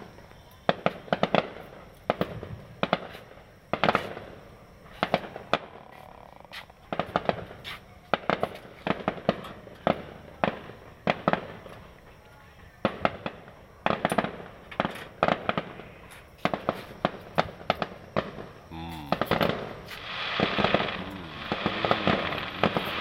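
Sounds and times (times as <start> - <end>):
fireworks bangs: 0.7 - 5.8, 6.8 - 11.9, 12.8 - 23.0
rumbling echo: 19.0 - 23.0.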